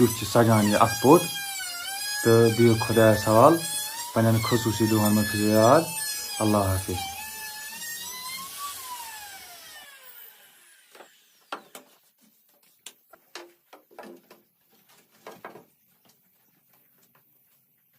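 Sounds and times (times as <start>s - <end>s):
power tool motor whining down: 0.0s - 11.9s.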